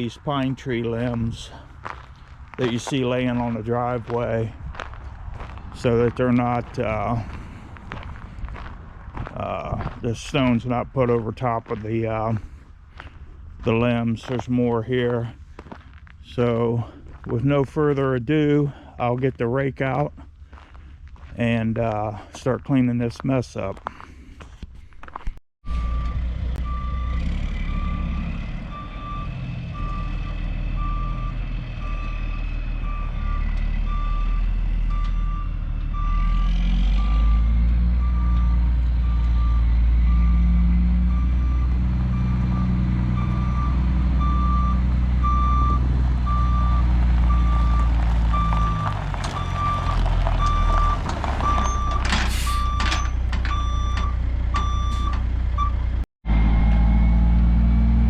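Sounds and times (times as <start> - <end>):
backup alarm beeping: 25.7 - 55.8
diesel engine working under load: 25.7 - 58.0.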